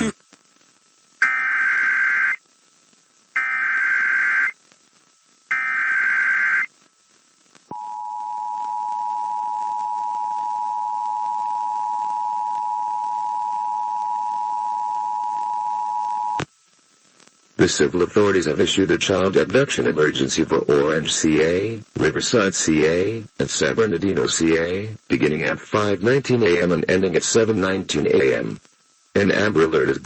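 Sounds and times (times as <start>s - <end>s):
data burst tones: 5.5s - 6.7s.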